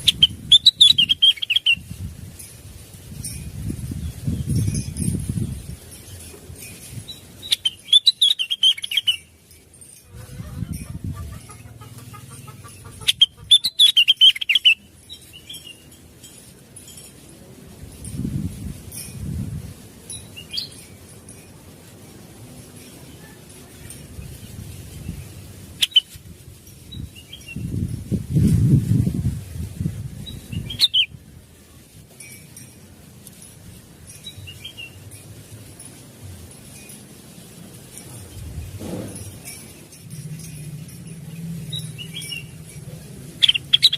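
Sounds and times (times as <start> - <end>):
bird chirping: 0.0 - 2.0, 7.0 - 10.0, 11.2 - 16.4, 20.2 - 20.9, 24.4 - 26.2, 30.2 - 31.2, 34.1 - 35.2, 40.4 - 42.7, 43.4 - 43.9
low rustling: 23.8 - 43.8.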